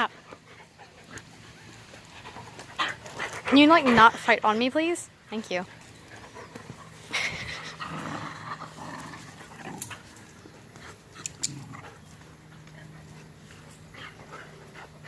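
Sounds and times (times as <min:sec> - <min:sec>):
dogs growling: 0:00.2 - 0:04.4, 0:05.7 - 0:15.0
sharp clicks: 0:11.2 - 0:11.6.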